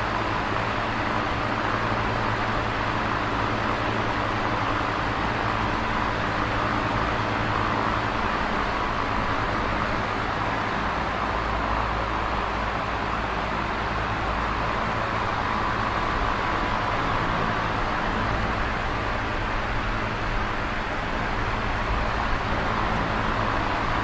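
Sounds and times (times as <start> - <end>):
electric fan air rush: 0.0 - 24.0
fan motor hum: 0.0 - 24.0.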